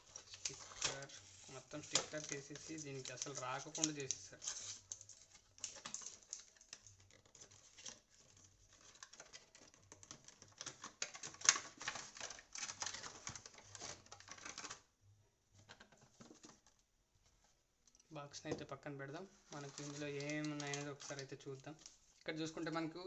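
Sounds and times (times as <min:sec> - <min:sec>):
packaging crackling and rustling: 0:00.0 - 0:14.9, 0:19.4 - 0:22.9.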